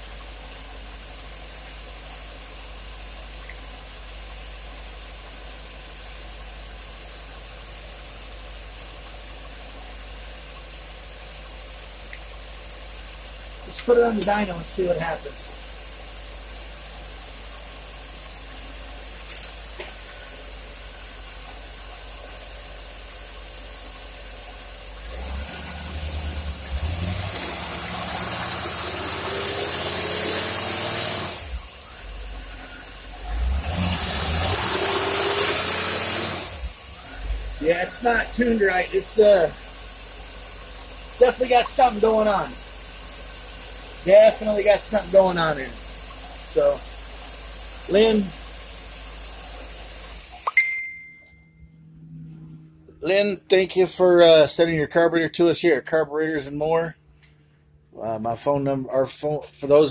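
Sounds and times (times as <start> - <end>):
engine idling: 0.0 - 50.4
even hiss: 25.2 - 50.5.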